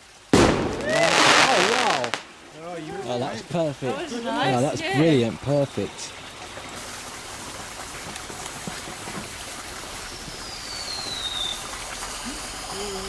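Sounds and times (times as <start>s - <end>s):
firework hissing and crackling: 0.4s - 2.3s, 8.0s - 13.0s.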